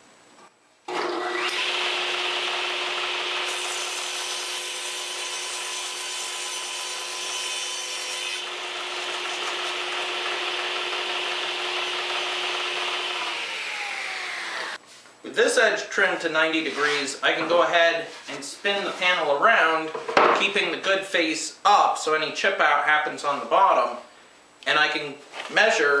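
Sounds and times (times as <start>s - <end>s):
saw motor hum: 0.9s - 14.8s
table saw cutting plywood: 0.9s - 14.8s.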